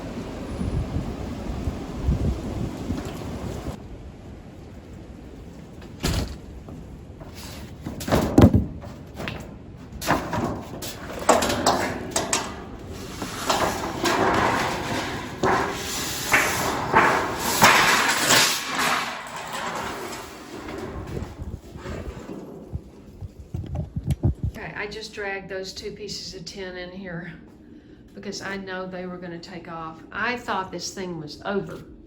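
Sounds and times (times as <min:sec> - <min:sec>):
sheet tin banging and scraping: 0:05.9 - 0:24.1.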